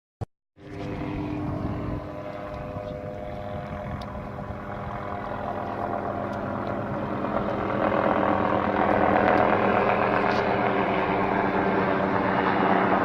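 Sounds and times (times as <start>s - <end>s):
helicopter turbine and rotor: 0.6s - 13.0s.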